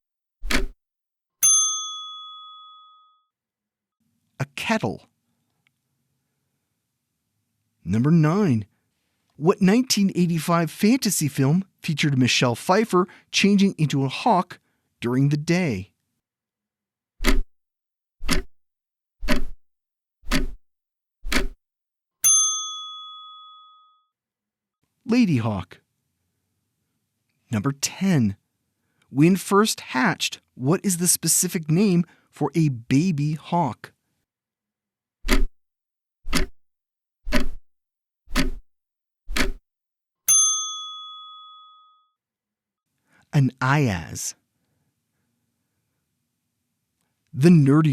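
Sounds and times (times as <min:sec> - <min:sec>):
bell ding: 0:01.4 - 0:03.2, 0:22.2 - 0:24.0, 0:40.3 - 0:42.1
clock ticks: 0:17.2 - 0:17.4, 0:18.2 - 0:18.5, 0:19.2 - 0:19.6, 0:20.3 - 0:20.6, 0:21.2 - 0:21.6, 0:35.3 - 0:35.5, 0:36.3 - 0:36.5, 0:37.3 - 0:37.6, 0:38.3 - 0:38.6, 0:39.3 - 0:39.6.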